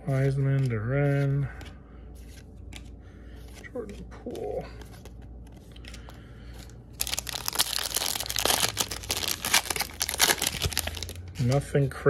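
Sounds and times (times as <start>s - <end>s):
foil wrapper crinkling: 6.6s - 11.6s
foil pack ripping: 7.0s - 11.6s.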